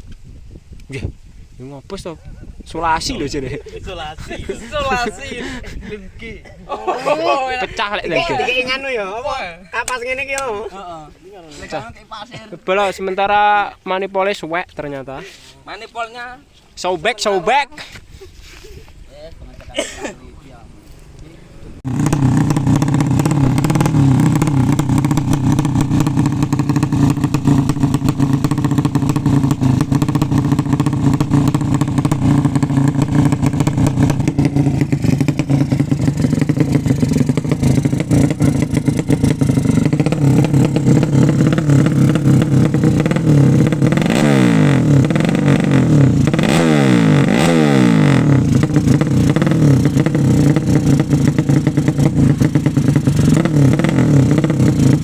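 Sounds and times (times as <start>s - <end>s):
motorcycle engine revving: 21.8s - 55.0s.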